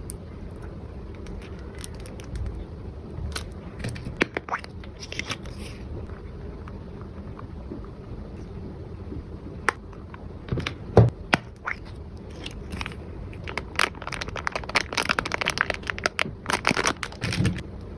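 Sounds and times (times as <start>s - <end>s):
packaging crinkling and crackling: 1.2s - 2.6s, 12.3s - 17.6s.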